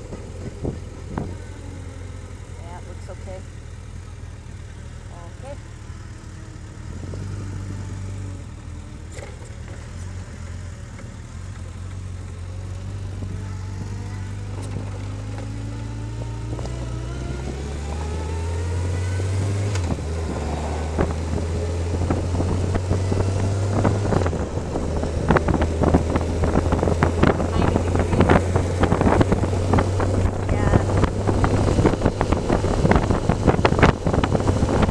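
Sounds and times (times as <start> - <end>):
motorcycle engine accelerating: 0.0 - 34.9
wind buffeting microphone: 16.2 - 34.9.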